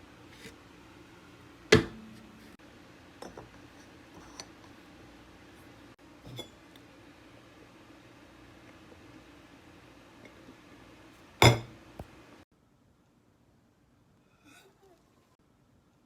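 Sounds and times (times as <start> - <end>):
object set down with a knock: 1.7 - 2.3, 11.4 - 11.7
dishes clinking: 3.2 - 3.6, 11.4 - 11.7.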